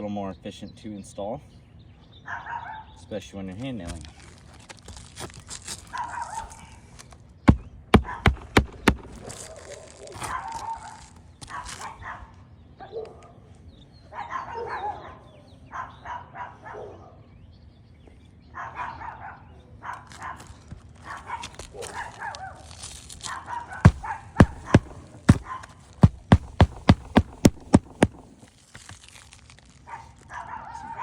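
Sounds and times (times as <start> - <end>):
hammer striking roofing nails: 7.5 - 9.4, 23.9 - 28.4.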